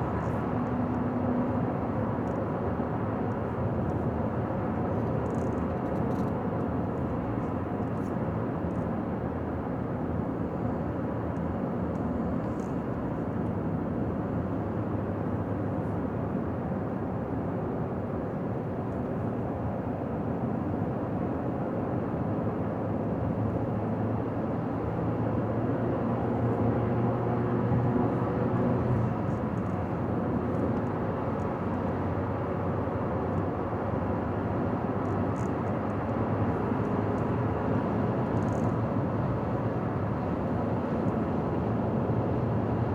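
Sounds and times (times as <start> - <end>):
car tyre and engine noise: 24.8 - 42.9.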